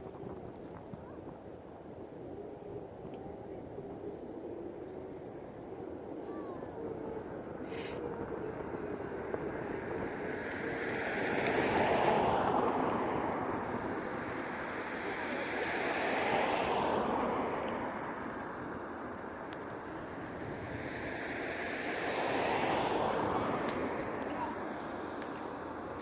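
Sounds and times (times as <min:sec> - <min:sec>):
aircraft passing overhead: 0:00.0 - 0:26.0.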